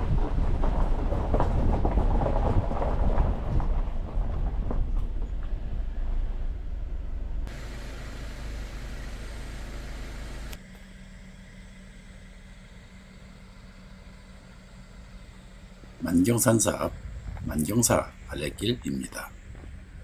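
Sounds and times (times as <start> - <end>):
off-road vehicle rumbling: 0.0 - 20.0
steady low drone: 5.8 - 20.0.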